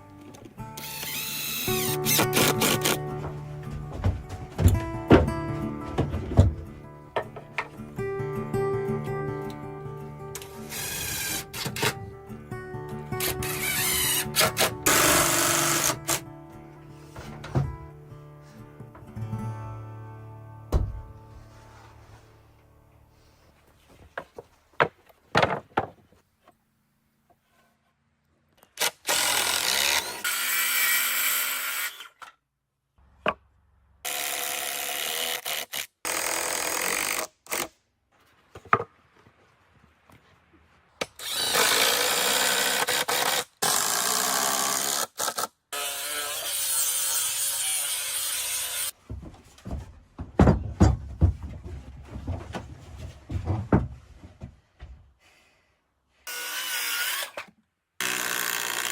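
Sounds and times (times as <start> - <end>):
power drill drilling into wood: 14.9 - 16.2, 28.8 - 32.1, 41.2 - 48.9, 56.3 - 58.9
sharp knocks and clatter: 49.0 - 54.9.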